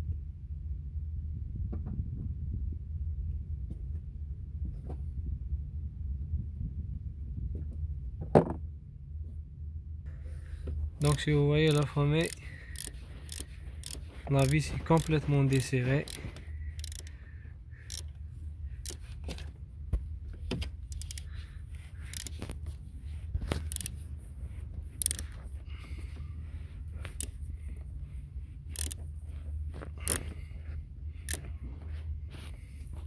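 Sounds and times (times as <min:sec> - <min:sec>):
steady low hum: 0:00.0 - 0:33.0
metal hand tool clicking and scraping: 0:11.0 - 0:17.1, 0:17.8 - 0:18.2, 0:18.8 - 0:19.5, 0:20.9 - 0:21.3, 0:22.0 - 0:22.5, 0:23.5 - 0:24.0, 0:25.0 - 0:25.4, 0:28.7 - 0:29.0, 0:30.0 - 0:30.3.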